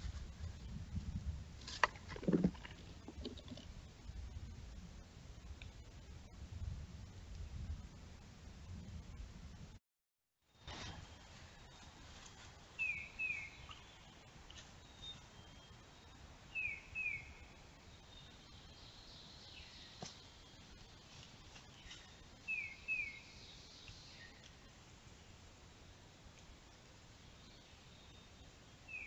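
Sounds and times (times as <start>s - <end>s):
faint steady hiss: 10.5s - 29.0s.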